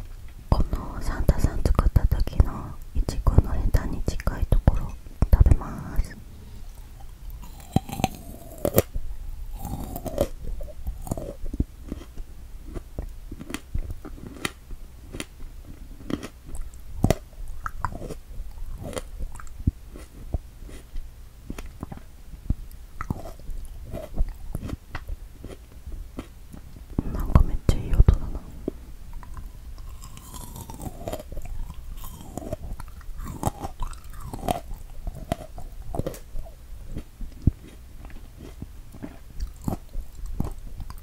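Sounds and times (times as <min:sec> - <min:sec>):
chewing with wet mouth smacks: 0:16.0 - 0:20.9, 0:22.7 - 0:25.6, 0:29.1 - 0:36.3, 0:36.9 - 0:41.0.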